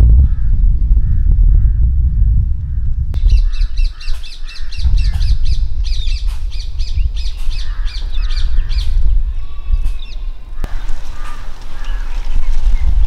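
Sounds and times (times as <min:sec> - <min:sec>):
steady low rumble: 0:00.0 - 0:11.3
lower slower bird calls: 0:02.6 - 0:13.0.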